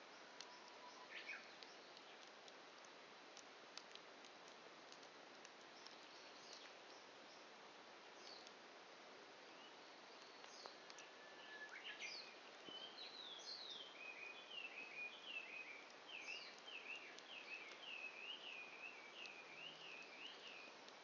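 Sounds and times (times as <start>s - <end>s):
faint hiss: 0.0s - 21.0s
campfire pops: 1.5s - 7.0s
songbird whistling: 10.5s - 20.7s.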